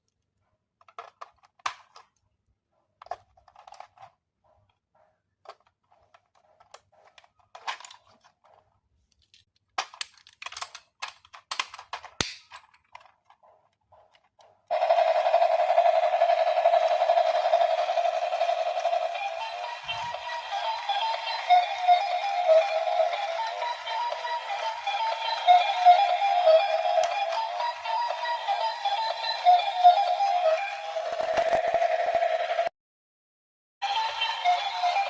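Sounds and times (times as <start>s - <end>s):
plastic clicking and rattling: 0.8s - 2.3s, 3.0s - 4.8s, 5.4s - 14.7s.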